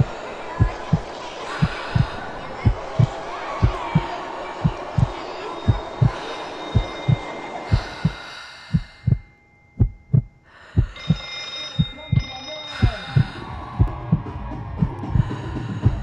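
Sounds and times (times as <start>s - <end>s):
layered hum: 0.0s - 8.2s
heartbeat thumping: 0.0s - 16.0s
steady high-pitched tones: 0.0s - 16.0s.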